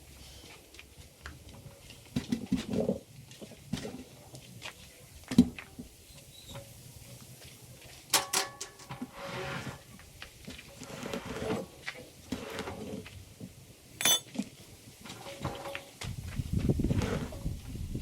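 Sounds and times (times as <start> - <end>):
metal clanks and scraping: 8.0 - 13.1, 14.0 - 16.1
ringing metallic clank: 14.0 - 14.3.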